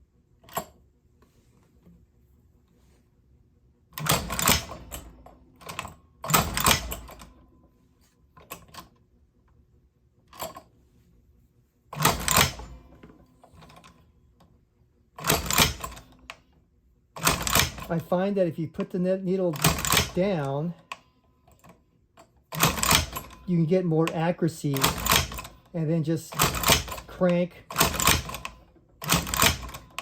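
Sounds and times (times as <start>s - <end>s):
hand-crank sewing machine clatter: 4.0s - 7.3s, 12.0s - 14.0s, 15.2s - 16.2s, 17.2s - 18.2s, 19.5s - 20.8s, 22.5s - 25.7s, 26.3s - 30.0s.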